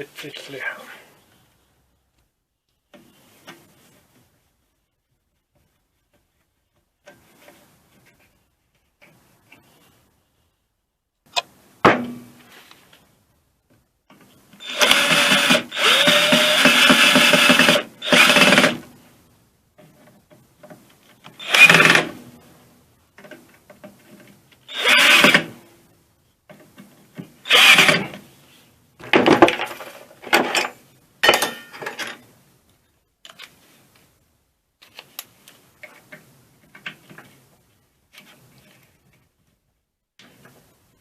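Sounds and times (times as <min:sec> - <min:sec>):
handheld power tool running: 0:14.6 - 0:18.8, 0:21.4 - 0:22.0, 0:24.7 - 0:25.4, 0:27.5 - 0:28.0.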